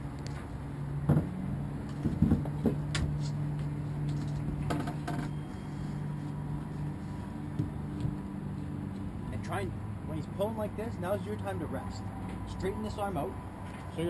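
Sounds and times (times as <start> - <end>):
sharp knocks and clicks: 4.0 - 5.4.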